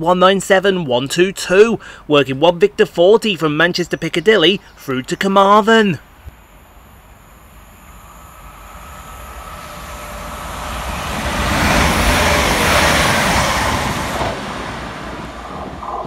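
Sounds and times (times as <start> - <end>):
train wheels rushing on rails: 7.0 - 16.0.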